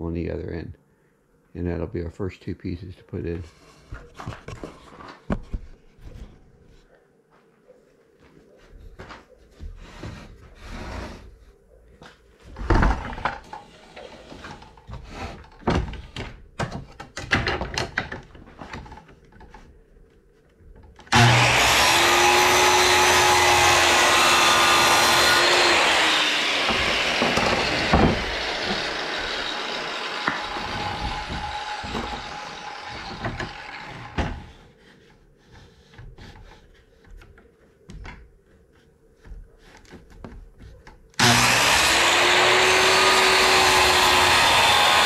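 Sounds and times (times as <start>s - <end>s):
electric power saw cutting: 21.1s - 34.4s, 41.2s - 45.0s.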